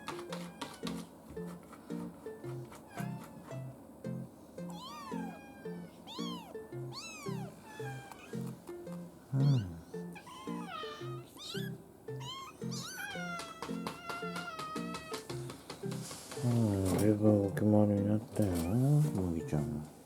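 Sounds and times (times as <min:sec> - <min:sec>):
kitten mewing: 0:02.8 - 0:03.6, 0:04.7 - 0:08.5, 0:09.3 - 0:15.2
background music with beat: 0:13.6 - 0:16.9.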